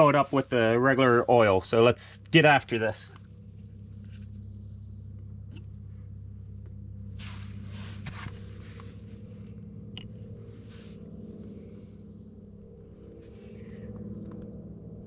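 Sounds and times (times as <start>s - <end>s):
steady low hum: 0.0s - 15.0s
scraping and rustling handling noise: 7.2s - 11.1s.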